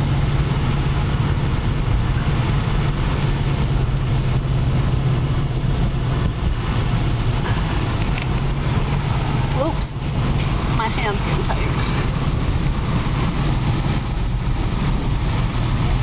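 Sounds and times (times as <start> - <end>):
car engine drone: 0.0 - 16.0
tyre noise on snowy road: 0.0 - 16.0.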